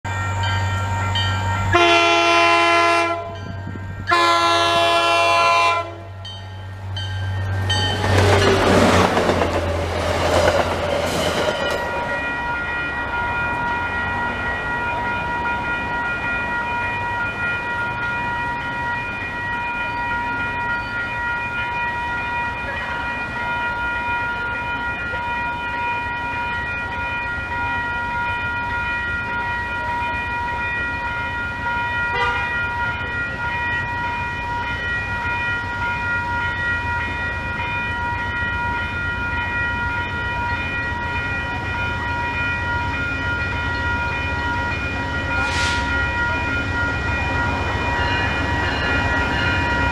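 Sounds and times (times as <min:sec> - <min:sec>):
steady high tone: 0:00.0 - 0:49.9
train rushing past: 0:00.1 - 0:24.7, 0:31.5 - 0:49.9
train horn blasts: 0:01.6 - 0:06.2, 0:32.1 - 0:32.6.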